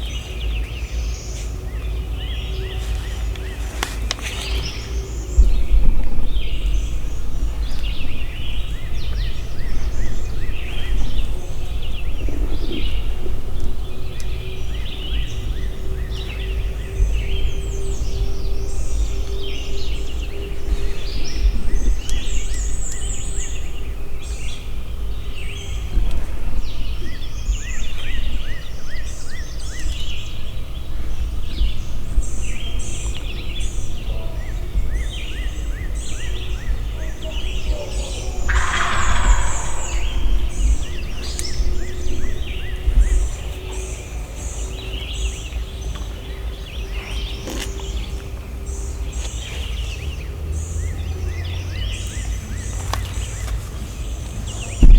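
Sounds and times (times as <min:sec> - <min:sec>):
songbirds chirping and trilling: 0:00.0 - 0:54.9
steady low rumble: 0:00.0 - 0:54.9
steady hum: 0:28.7 - 0:44.9.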